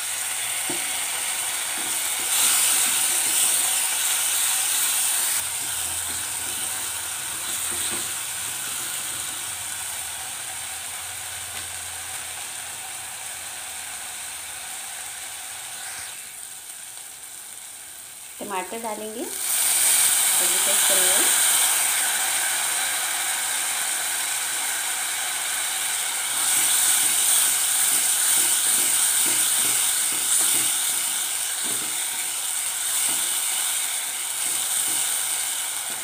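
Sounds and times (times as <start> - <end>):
spices sizzling in hot oil: 0.0 - 36.0.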